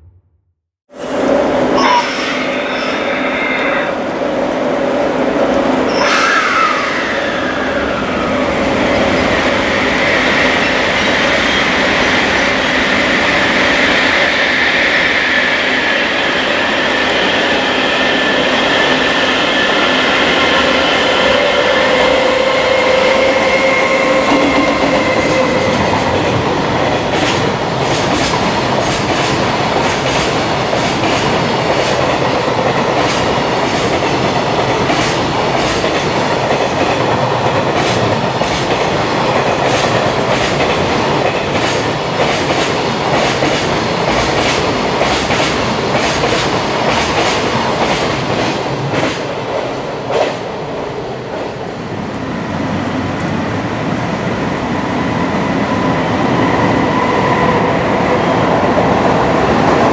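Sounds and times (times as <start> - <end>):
freight train running past: 0.9 - 59.9
high-pitched locomotive tones: 1.0 - 4.2, 5.8 - 27.2.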